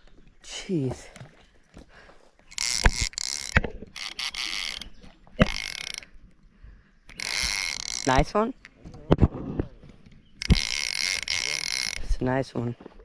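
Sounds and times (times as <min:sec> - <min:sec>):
fishing reel ratcheting: 0:02.5 - 0:06.4, 0:07.1 - 0:08.4, 0:10.4 - 0:12.3.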